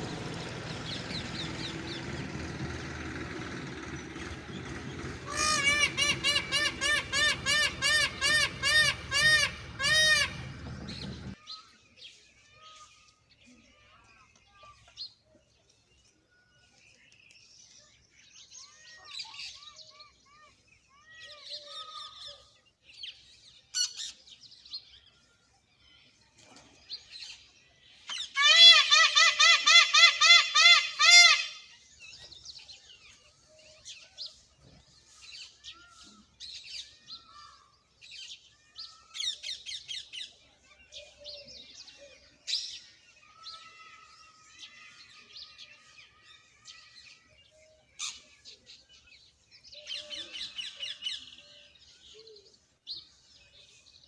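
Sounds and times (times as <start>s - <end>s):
birds calling and chirping: 0.0s - 54.0s
fast repeated bird calls: 3.8s - 11.3s.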